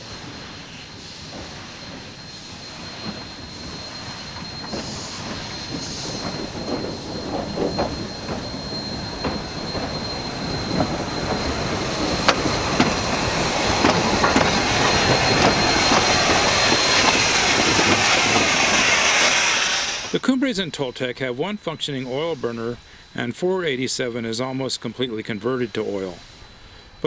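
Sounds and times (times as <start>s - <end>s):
high-pitched wheel squeal: 0.0s - 20.2s
train rolling on rails: 0.0s - 27.0s
wheel clicks and knocks on track: 1.3s - 20.2s.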